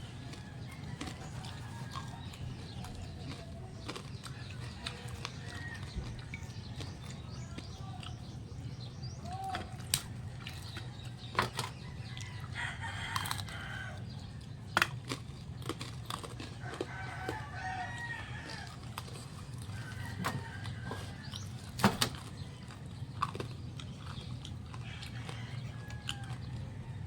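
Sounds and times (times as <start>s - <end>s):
rooster crowing: 0.0s - 3.1s, 4.3s - 6.3s, 11.8s - 14.3s, 16.4s - 21.8s, 24.7s - 27.0s
sharp clicks from eating: 0.0s - 27.0s.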